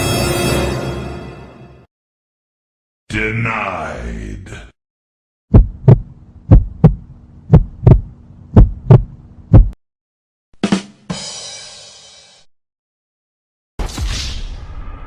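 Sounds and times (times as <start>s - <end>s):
heartbeat thumps: 5.5s - 9.8s
steady low hum: 5.6s - 9.8s.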